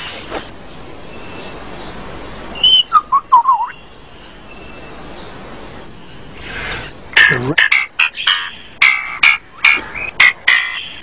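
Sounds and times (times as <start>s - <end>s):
soft steady hiss: 0.0s - 11.0s
lyrebird whistled calls: 2.6s - 3.8s, 6.5s - 11.0s.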